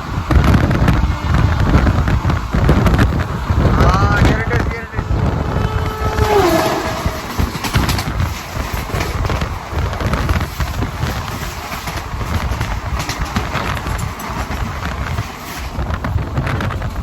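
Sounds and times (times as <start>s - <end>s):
train rumbling: 0.0s - 17.0s
wheels clattering over track: 0.0s - 17.0s
tone sliding down in pitch: 5.7s - 7.5s.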